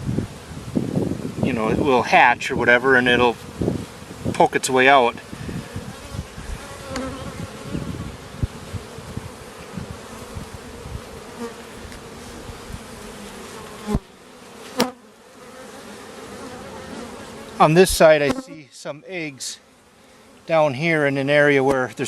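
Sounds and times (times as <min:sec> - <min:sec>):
bees buzzing: 0:02.8 - 0:18.7.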